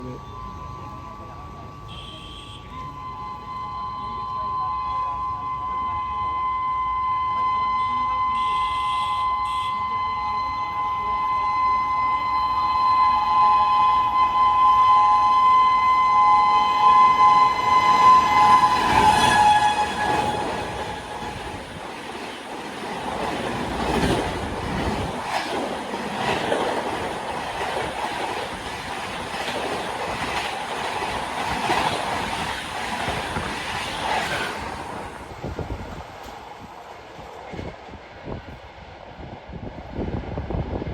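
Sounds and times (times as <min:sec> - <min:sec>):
shrill two-tone locomotive horn: 0:01.4 - 0:22.3
train rushing past: 0:03.0 - 0:40.9
wheels clacking on rail joints: 0:18.2 - 0:37.9.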